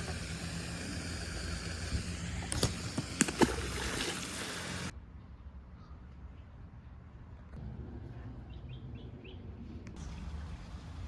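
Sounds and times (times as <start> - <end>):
water splashing around boat: 0.0 - 4.9.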